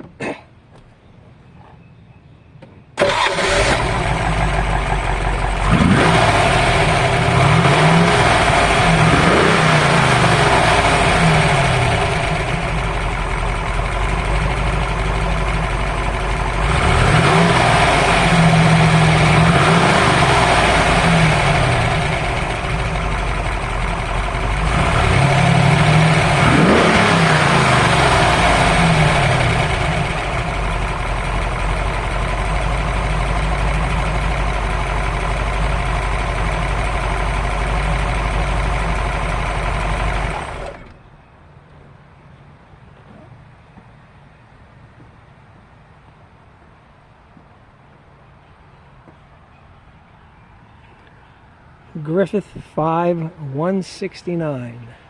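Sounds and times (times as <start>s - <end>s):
car engine starting and revving: 3.0s - 41.0s.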